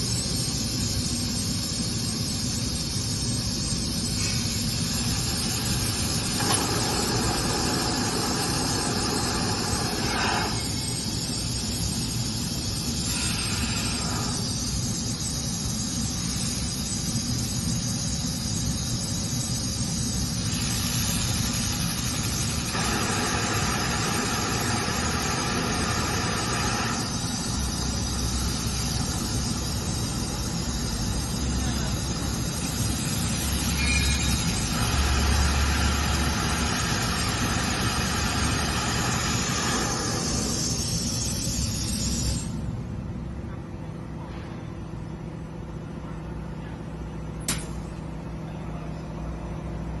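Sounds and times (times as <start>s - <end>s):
laser drilling machine humming: 0.0s - 42.6s
sharp machine click: 47.4s - 48.0s.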